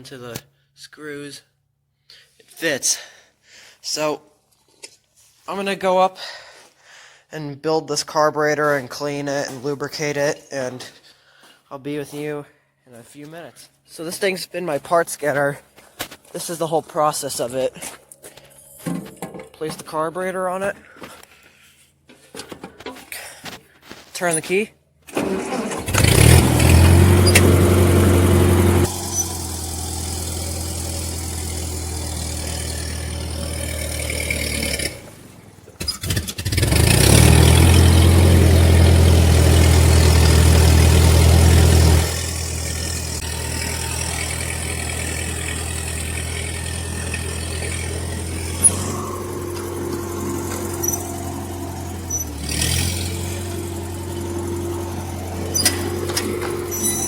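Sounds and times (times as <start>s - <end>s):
car engine idling: 25.5s - 57.0s.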